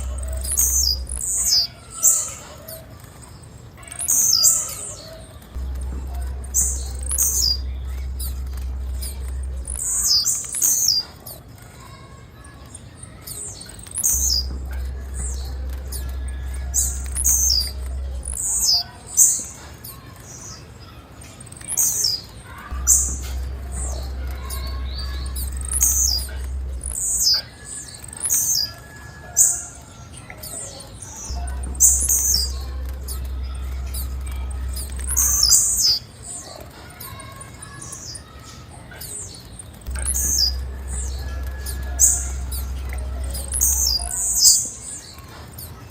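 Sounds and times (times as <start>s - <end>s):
low hum: 0.0s - 1.7s, 5.3s - 11.4s, 13.7s - 18.8s, 22.6s - 28.4s, 31.3s - 36.0s, 39.7s - 44.5s
bird chirping: 0.0s - 45.9s.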